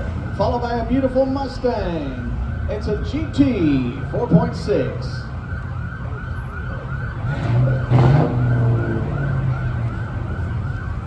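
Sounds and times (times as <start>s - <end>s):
siren yelping: 0.0s - 11.0s
car engine rumble passing: 2.2s - 11.0s.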